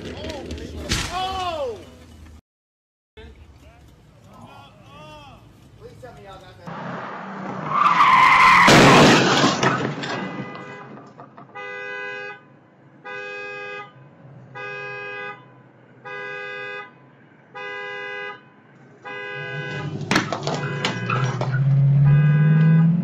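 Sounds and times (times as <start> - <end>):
car crash: 0.0 - 1.5, 6.7 - 11.6, 19.5 - 22.7
tyres screeching: 6.7 - 11.0, 19.4 - 23.0
car horn honks: 10.1 - 23.0.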